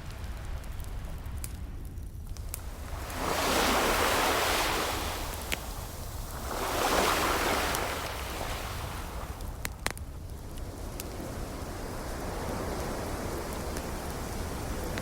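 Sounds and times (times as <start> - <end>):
wood fire crackling: 0.0 - 15.0
surf hiss: 2.4 - 15.0
ocean waves breaking: 2.5 - 15.0.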